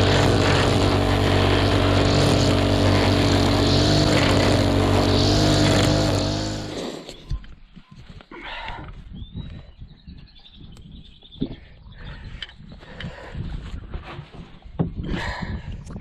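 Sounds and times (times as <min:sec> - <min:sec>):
strimmer engine running: 0:00.0 - 0:07.2.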